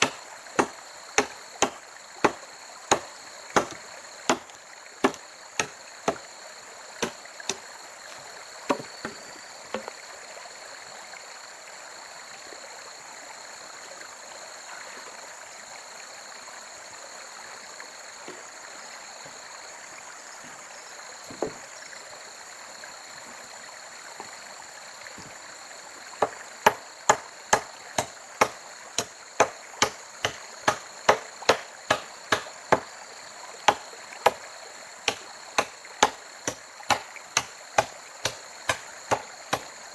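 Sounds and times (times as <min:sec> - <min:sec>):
blade chopping wood: 0:00.0 - 0:06.2, 0:07.0 - 0:09.9, 0:26.2 - 0:32.8, 0:33.7 - 0:34.4, 0:35.1 - 0:39.7.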